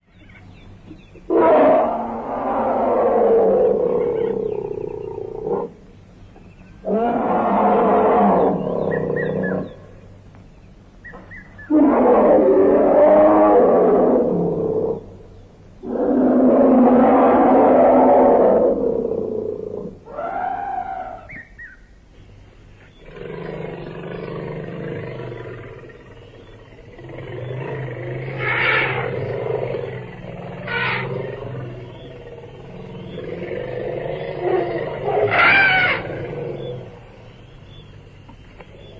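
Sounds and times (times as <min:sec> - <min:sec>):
elephant calling: 0:23.0 - 0:38.9.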